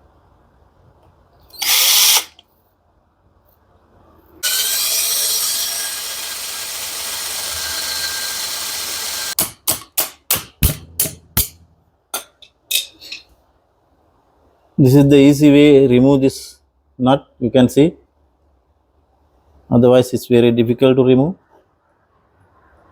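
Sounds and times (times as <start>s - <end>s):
electric drill running: 1.6s - 2.4s, 4.4s - 9.4s.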